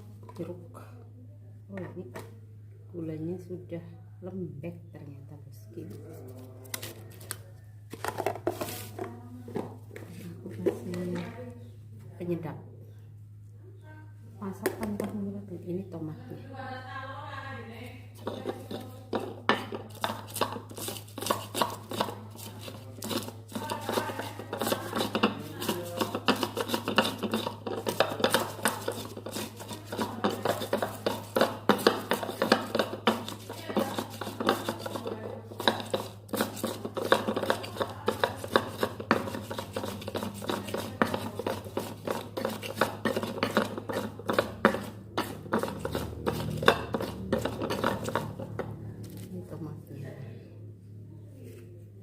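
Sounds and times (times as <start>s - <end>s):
stone pestle grinding in mortar: 18.2s - 49.3s.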